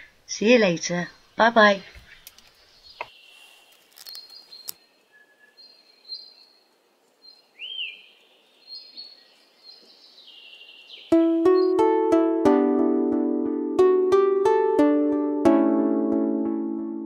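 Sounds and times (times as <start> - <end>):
faint small birds chirping: 0.8 - 11.8.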